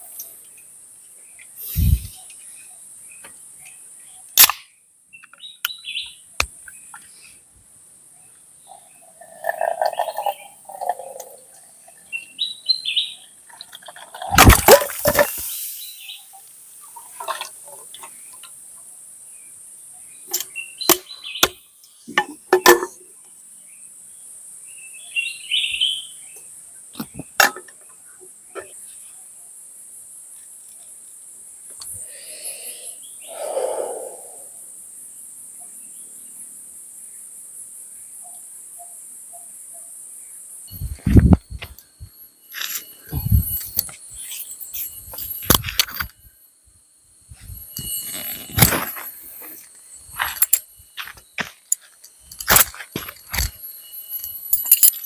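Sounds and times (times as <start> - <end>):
bird chirps: 5.1 - 7.4, 8.2 - 13.4, 19.9 - 22.1, 24.7 - 26.5, 32.3 - 34.6, 40.7 - 45.4
high-pitched insect drone: 14.2 - 18.5, 31.8 - 35.2, 40.6 - 55.0.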